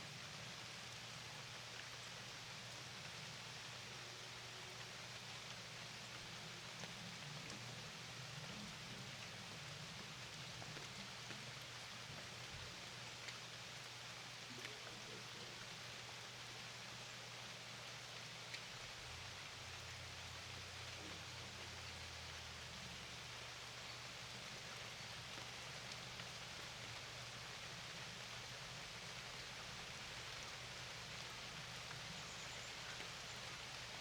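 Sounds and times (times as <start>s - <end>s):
rain falling: 0.0s - 34.0s
raindrop ticks: 13.2s - 13.5s, 18.4s - 22.4s.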